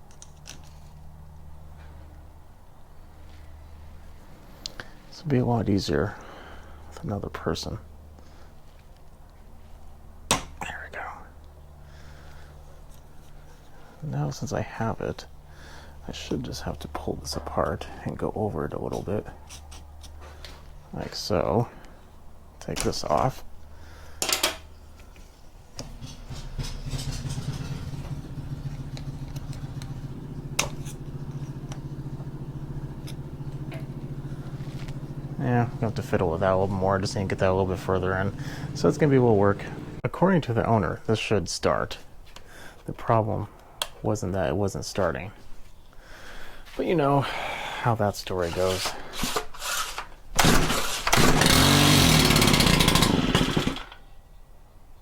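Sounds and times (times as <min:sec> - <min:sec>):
edger engine idling: 0:25.8 - 0:40.1, 0:50.4 - 0:54.0
starter cord pull: 0:49.2 - 0:54.0.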